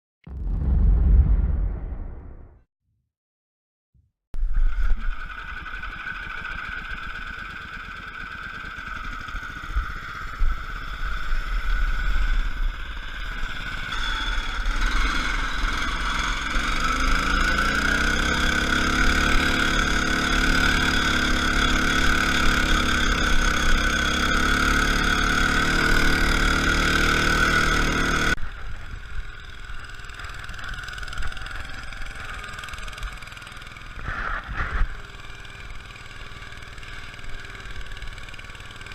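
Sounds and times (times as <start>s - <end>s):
lawn tractor engine running: 34.9s - 38.9s.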